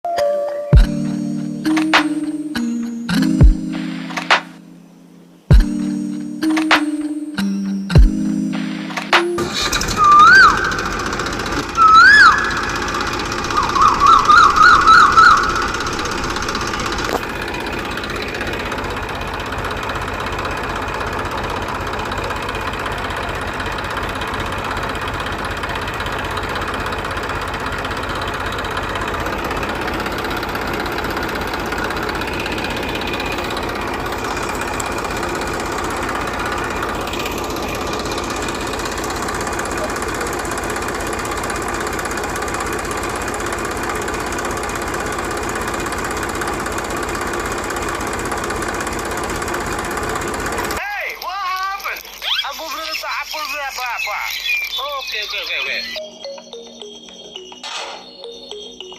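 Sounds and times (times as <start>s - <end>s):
small engine rattling: 9.4s - 56.2s
warbling siren whoops: 9.6s - 17.0s.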